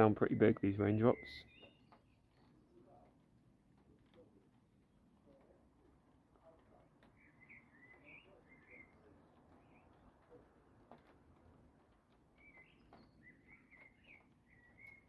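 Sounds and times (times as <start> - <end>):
bird chirps and twittering: 0.0 - 2.6, 7.0 - 10.4, 12.2 - 15.0
raindrop taps: 5.4 - 15.0.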